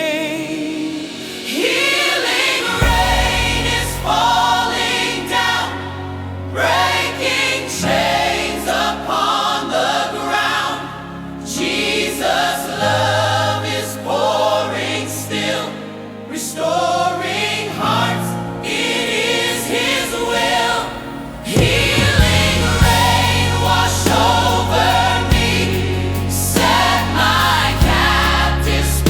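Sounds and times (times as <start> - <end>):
choir singing: 0.0 - 29.0
instrumental backing with bass: 21.4 - 29.0.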